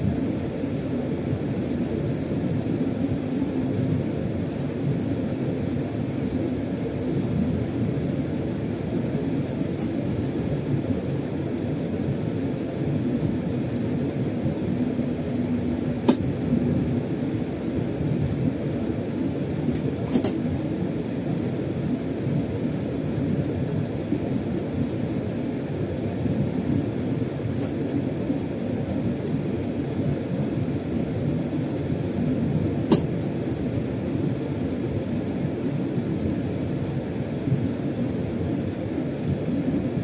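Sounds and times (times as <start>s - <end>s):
freight train rumble: 7.3s - 34.3s.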